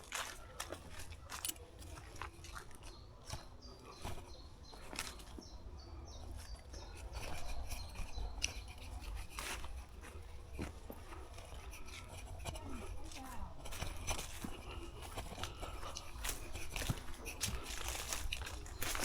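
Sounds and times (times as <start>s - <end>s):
footsteps crunching on path: 0.0s - 19.0s.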